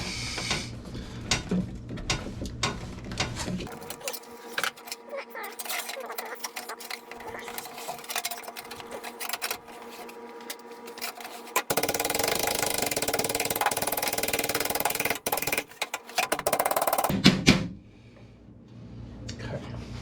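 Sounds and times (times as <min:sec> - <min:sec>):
metalworking tool chattering: 0:11.0 - 0:17.1.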